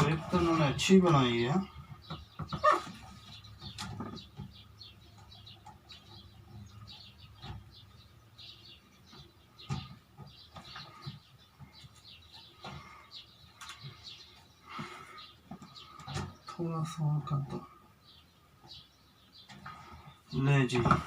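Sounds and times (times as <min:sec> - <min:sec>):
small birds chirping: 0:00.0 - 0:21.0
plastic parts knocking and clicking: 0:01.7 - 0:06.7.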